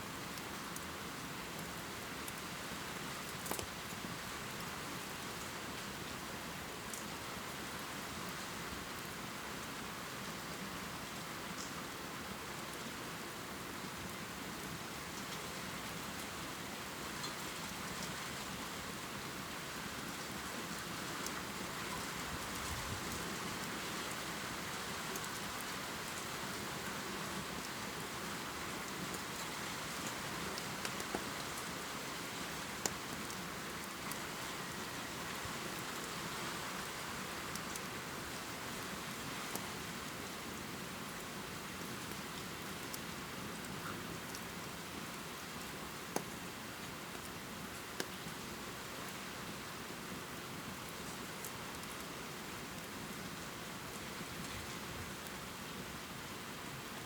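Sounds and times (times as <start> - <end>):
raindrop ticks: 29.1 - 31.6.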